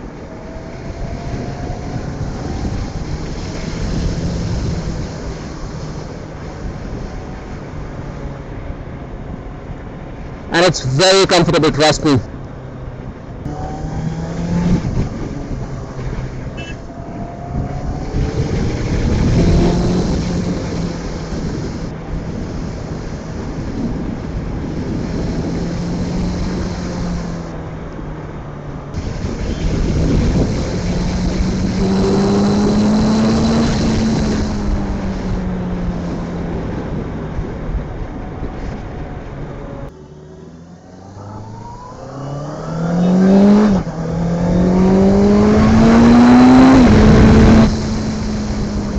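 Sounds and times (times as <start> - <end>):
motorcycle engine revving: 0.0 - 7.6, 13.4 - 27.6, 28.9 - 37.0, 39.9 - 48.9
wind on microphone: 0.0 - 8.4, 13.4 - 27.6, 28.9 - 39.9, 40.8 - 48.9.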